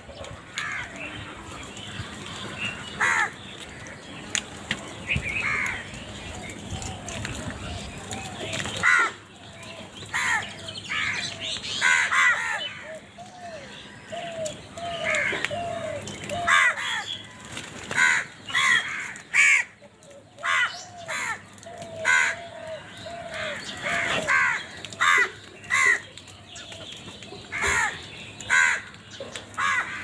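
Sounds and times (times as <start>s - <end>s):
crows cawing: 0.5s - 1.2s, 1.9s - 4.0s, 5.4s - 6.0s, 8.2s - 9.3s, 10.1s - 26.2s, 27.4s - 30.0s.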